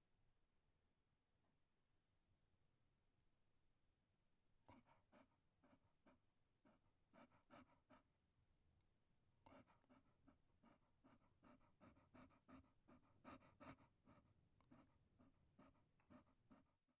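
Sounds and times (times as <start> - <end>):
dog panting: 4.7 - 8.7, 9.4 - 17.0.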